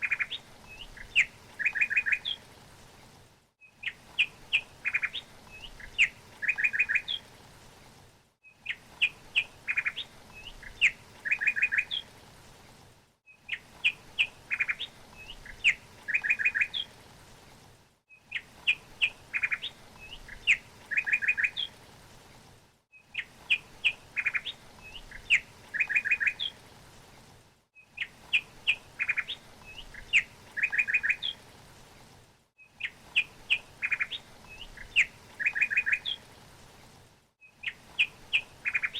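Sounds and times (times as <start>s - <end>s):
songbird chirping and trilling: 0.0s - 2.4s, 3.7s - 7.2s, 8.5s - 12.1s, 13.4s - 16.9s, 18.2s - 21.7s, 23.0s - 26.6s, 27.8s - 31.4s, 32.8s - 36.2s, 37.5s - 38.9s.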